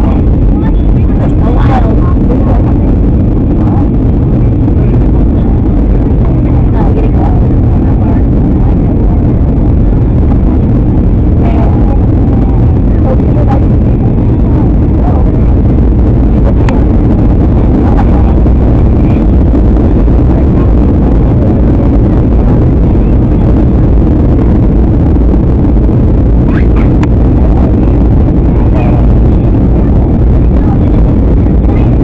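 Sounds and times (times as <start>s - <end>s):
airliner cabin engine drone: 0.0s - 32.0s.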